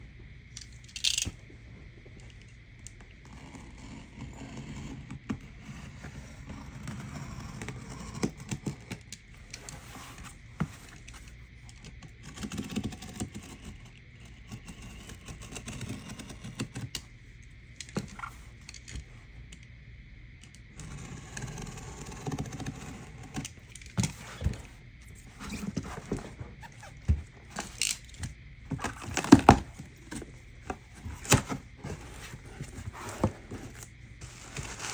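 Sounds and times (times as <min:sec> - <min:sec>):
cardboard box being handled: 0:22.2 - 0:34.9.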